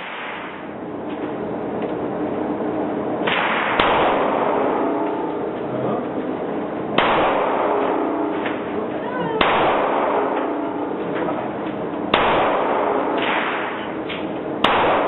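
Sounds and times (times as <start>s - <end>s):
pistol shots: 0.0s - 0.7s, 3.2s - 5.4s, 7.0s - 8.8s, 9.4s - 15.0s.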